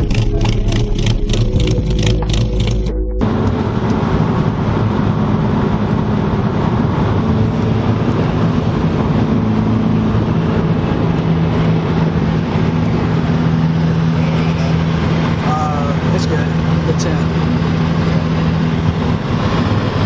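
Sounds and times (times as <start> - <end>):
car engine drone: 0.0 - 20.0
road and wind noise: 0.0 - 20.0.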